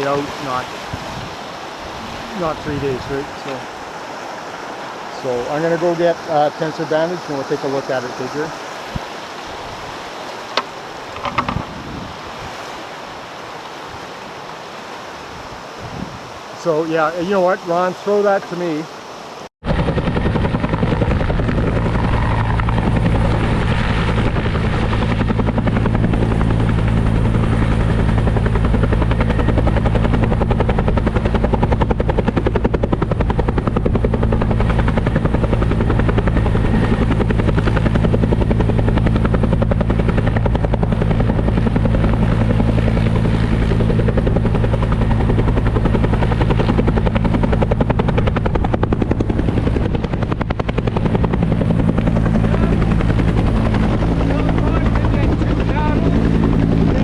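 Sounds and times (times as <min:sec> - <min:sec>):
helicopter rotor beating: 0:00.0 - 0:04.0, 0:04.6 - 0:08.8, 0:10.5 - 0:12.4, 0:16.6 - 0:19.0, 0:19.6 - 0:57.0
low engine drone: 0:19.6 - 0:57.0.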